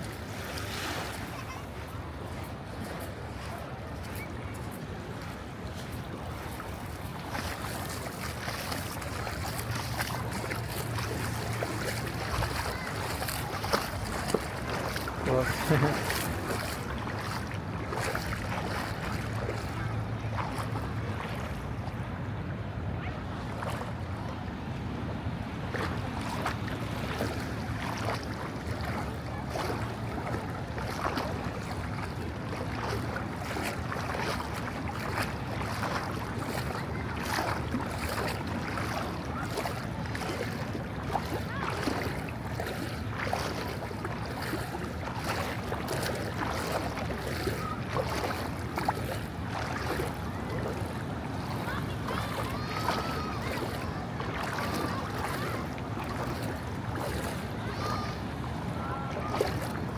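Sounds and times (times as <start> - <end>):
ocean surf: 0.0 - 59.9
small sharp knocks or splashes: 5.8 - 19.8, 25.7 - 51.7, 52.8 - 57.4.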